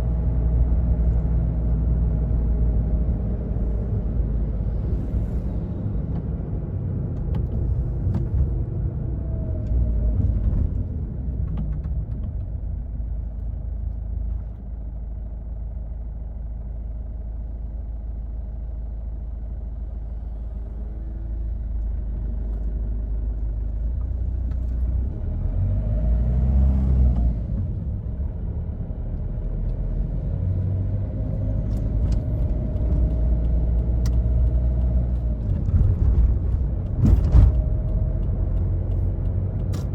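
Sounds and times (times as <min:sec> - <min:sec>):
car engine rumble in cabin: 0:00.0 - 0:39.9.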